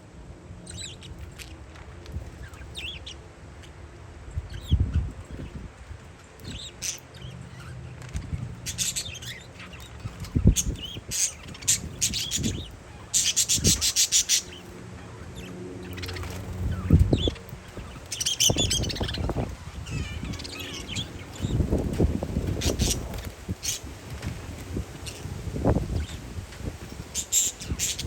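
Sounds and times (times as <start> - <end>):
parakeets chirping: 0.6 - 3.8, 4.4 - 5.6, 6.4 - 28.0
wind thumps on microphone: 16.7 - 27.8.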